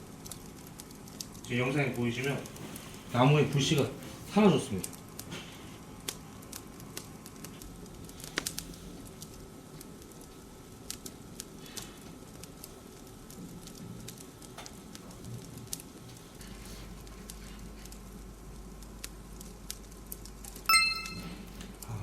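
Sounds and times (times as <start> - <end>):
wood fire crackling: 0.0 - 20.5.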